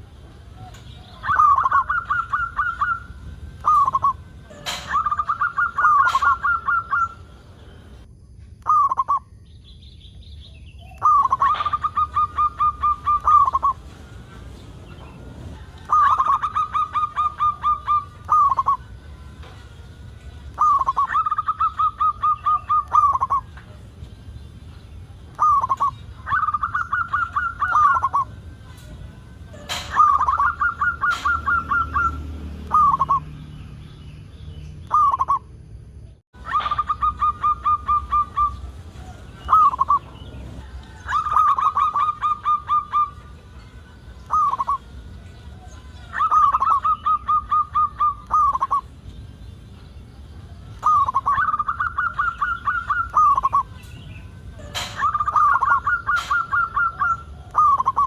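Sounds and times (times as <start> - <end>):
dove cooing: 0.6 - 7.3, 11.0 - 19.6, 20.3 - 23.9, 25.3 - 28.4, 29.6 - 33.2, 36.4 - 43.3, 44.3 - 44.9, 45.5 - 48.9, 50.8 - 53.7, 54.6 - 58.0.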